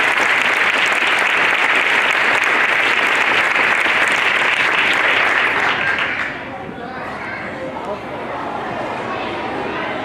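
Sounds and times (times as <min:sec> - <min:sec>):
children clapping: 0:00.0 - 0:06.5.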